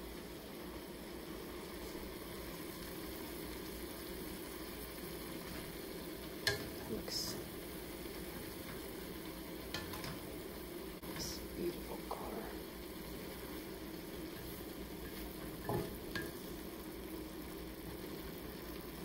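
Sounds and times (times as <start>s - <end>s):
cabbage sizzling in skillet: 0.0s - 19.0s
wooden spatula knocking on pan: 15.6s - 16.4s.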